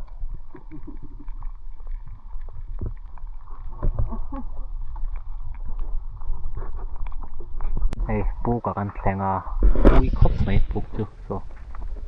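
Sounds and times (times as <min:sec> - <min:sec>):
water noise: 0:00.0 - 0:12.0
boat engine rumble: 0:06.0 - 0:12.0.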